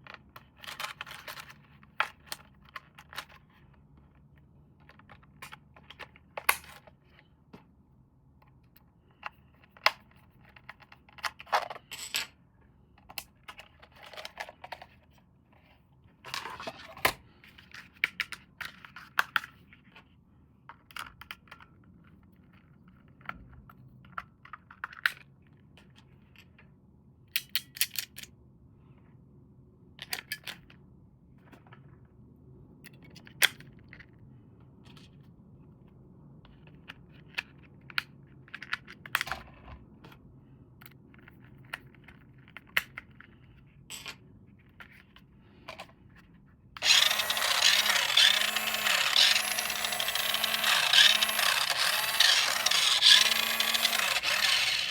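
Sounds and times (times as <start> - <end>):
toy clicks and taps: 46.8 - 54.9.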